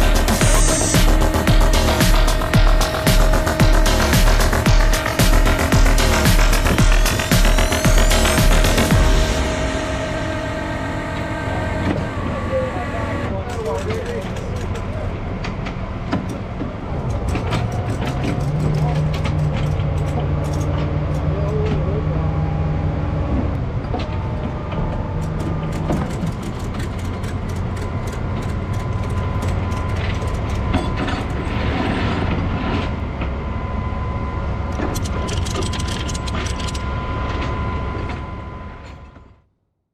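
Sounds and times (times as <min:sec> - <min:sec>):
heavy truck engine running: 0:00.0 - 0:39.4
metallic clicks and clanks: 0:13.4 - 0:15.0, 0:17.0 - 0:21.8, 0:25.2 - 0:31.4, 0:34.7 - 0:36.9.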